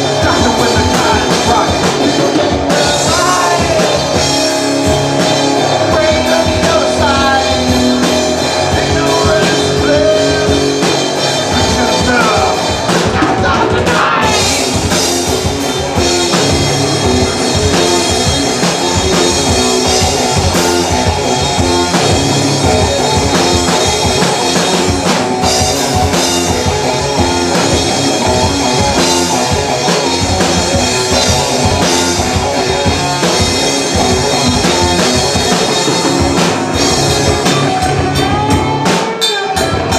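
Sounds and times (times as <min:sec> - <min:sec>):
person singing: 0:00.0 - 0:14.8, 0:37.3 - 0:39.9
live rock band playing: 0:00.0 - 0:39.9.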